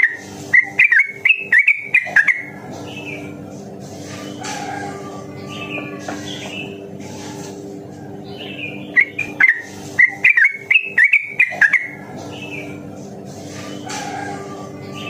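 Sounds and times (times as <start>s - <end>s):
bird singing chirping notes: 0.0s - 3.3s, 8.2s - 12.8s.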